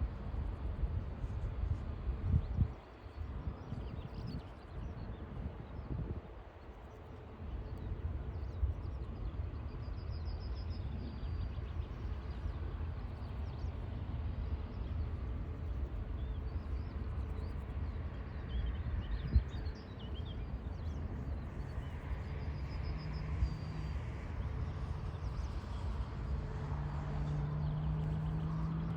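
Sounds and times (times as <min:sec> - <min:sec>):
wind buffeting microphone: 0:00.4 - 0:06.5
distant jet airliner rumble: 0:10.8 - 0:28.9.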